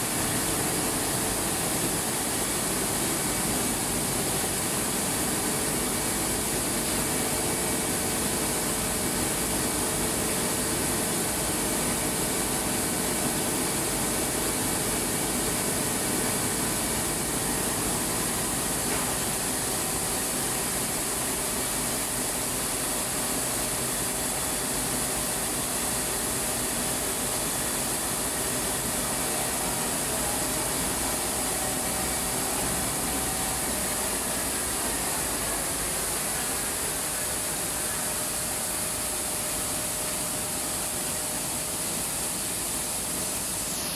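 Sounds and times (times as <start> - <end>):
milling machinery running: 11.8 - 43.9.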